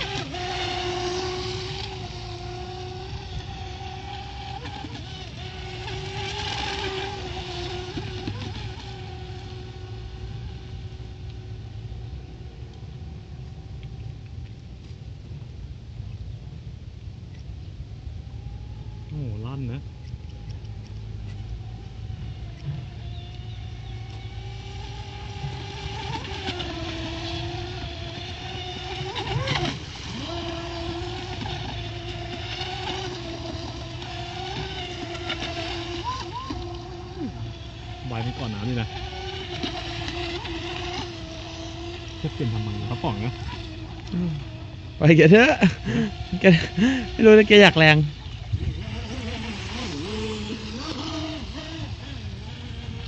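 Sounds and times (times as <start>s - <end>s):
electric motor whining: 0.0s - 14.9s, 18.1s - 53.0s
steady low rumble: 8.2s - 26.6s.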